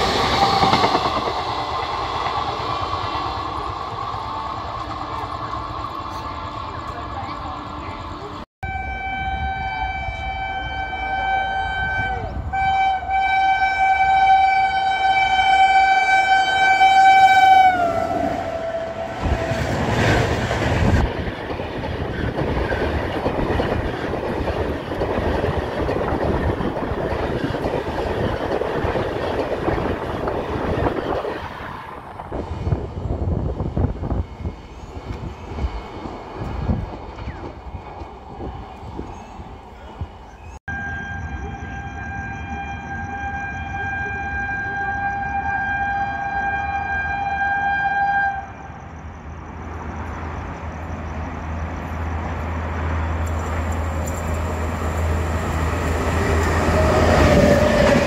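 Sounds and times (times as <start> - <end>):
train horn blast: 8.6 - 20.0, 40.7 - 48.7.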